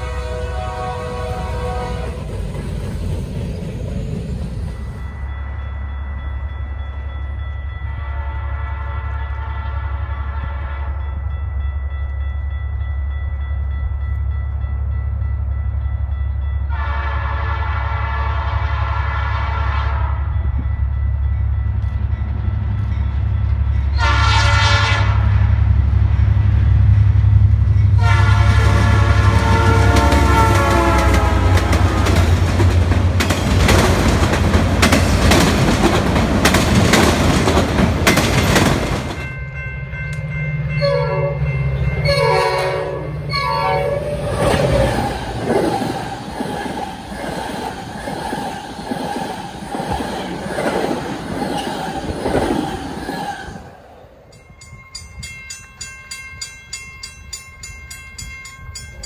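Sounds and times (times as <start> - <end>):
short train horn blasts: 0.0 - 2.3, 7.9 - 11.2, 16.7 - 20.5, 23.9 - 25.6, 28.0 - 32.3, 40.8 - 44.4
locomotive multi-note horn: 0.0 - 2.4, 7.9 - 11.2, 16.7 - 20.5, 23.9 - 25.7, 28.0 - 32.4, 40.7 - 45.0
locomotive engine and wheels passing: 0.0 - 17.1, 20.1 - 59.0
distant train: 0.0 - 59.0
train engine hum: 0.0 - 59.0.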